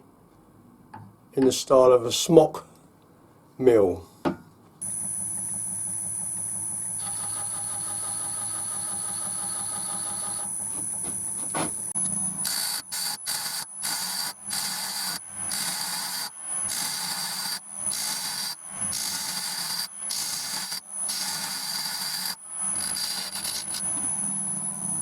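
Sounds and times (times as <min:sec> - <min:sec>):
tool cutting spinning wood: 0:05.2 - 0:25.0.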